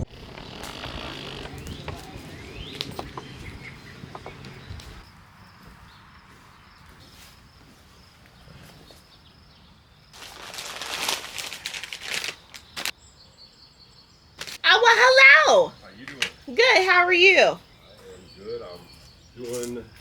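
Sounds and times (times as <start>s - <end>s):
close rustling and crunching: 0.0s - 13.0s.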